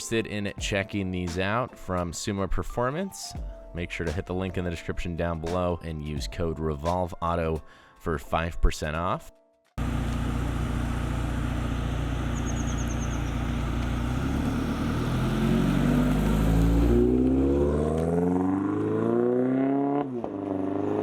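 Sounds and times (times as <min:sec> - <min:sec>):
car engine accelerating: 0:09.8 - 0:21.0.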